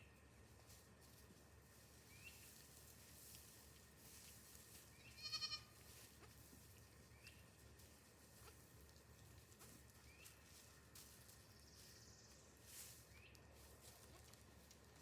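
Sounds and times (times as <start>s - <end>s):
goat bleating: 5.2s - 5.8s.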